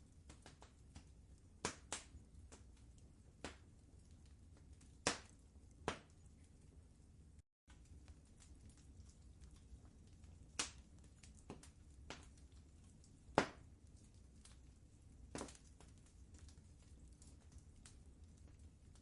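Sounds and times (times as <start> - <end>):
low steady rumble: 0.0 - 19.0
wood fire crackling: 0.0 - 19.0
sharp fire pops: 0.2 - 3.8, 4.6 - 6.2, 10.3 - 14.6, 15.2 - 19.0.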